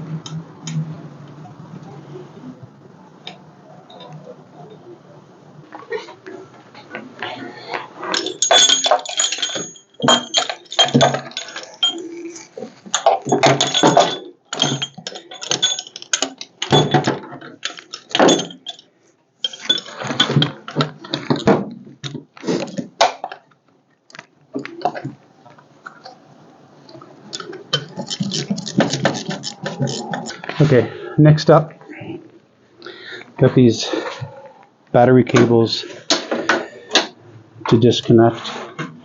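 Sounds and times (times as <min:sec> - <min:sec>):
metal tools clinking: 0:08.0 - 0:21.6, 0:25.9 - 0:30.6.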